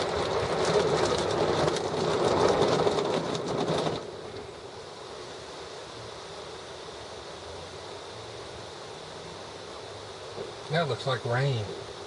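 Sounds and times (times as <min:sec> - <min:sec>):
quiet steady hiss: 0:00.0 - 0:12.0
clatter on car body: 0:00.1 - 0:04.1.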